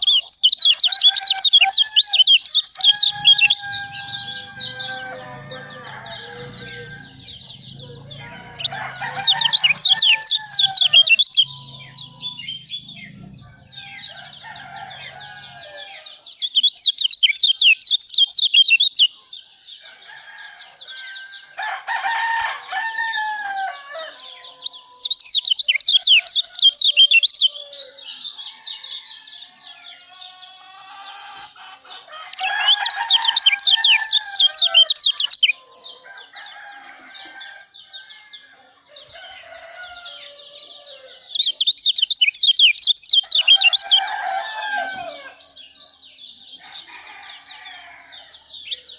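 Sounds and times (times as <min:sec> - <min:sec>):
songbird high-pitched twittering: 0:00.0 - 0:19.9, 0:24.1 - 0:31.3, 0:32.3 - 0:35.6, 0:39.0 - 0:47.0
bird chattering and whistled calls: 0:06.6 - 0:15.1, 0:16.2 - 0:19.1, 0:41.3 - 0:44.0.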